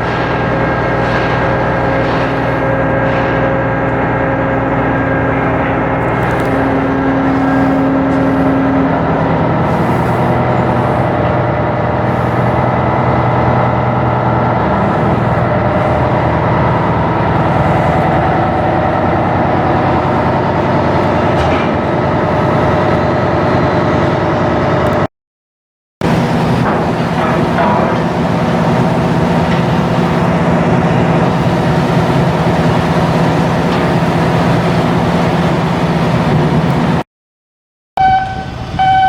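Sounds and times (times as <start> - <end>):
steady tone: 0.0 - 23.9
ship diesel engine running: 0.0 - 25.1, 26.0 - 37.0, 38.0 - 39.0.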